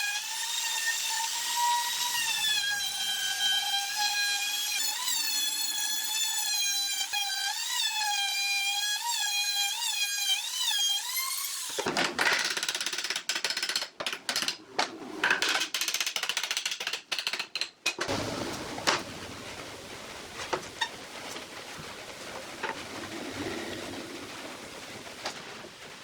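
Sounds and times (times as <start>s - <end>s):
dense clicking and knocking: 11.8s - 26.0s.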